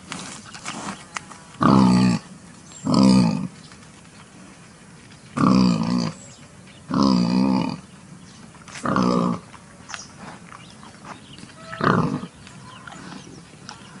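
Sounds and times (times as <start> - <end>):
loud pitched pig calls: 1.6 - 3.5, 11.5 - 13.2.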